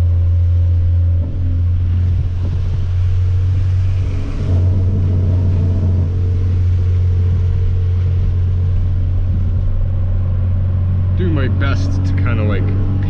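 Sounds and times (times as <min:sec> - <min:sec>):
low exhaust drone: 0:00.0 - 0:13.0
road noise: 0:00.0 - 0:13.0.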